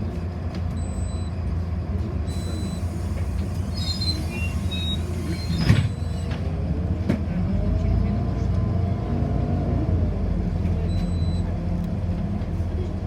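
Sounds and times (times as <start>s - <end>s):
bus driving drone: 1.5s - 10.6s
high squeaks: 3.7s - 6.3s.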